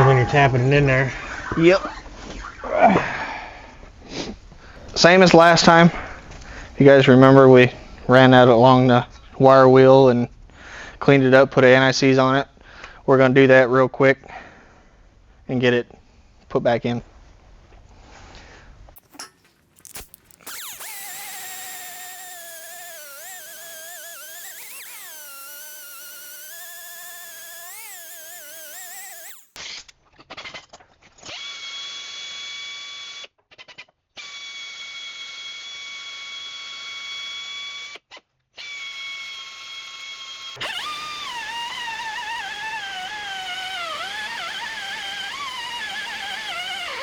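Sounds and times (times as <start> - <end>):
wire wheel motor whining: 19.0 - 29.6, 40.5 - 47.0.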